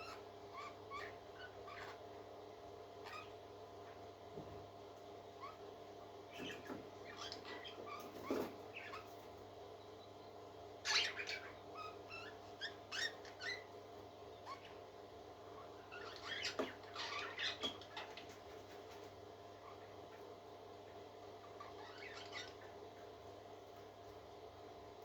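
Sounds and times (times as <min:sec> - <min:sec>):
parrot chick peeping: 0:00.0 - 0:02.2, 0:03.0 - 0:03.4, 0:06.3 - 0:09.2, 0:09.8 - 0:14.9, 0:15.5 - 0:20.3, 0:20.9 - 0:23.2.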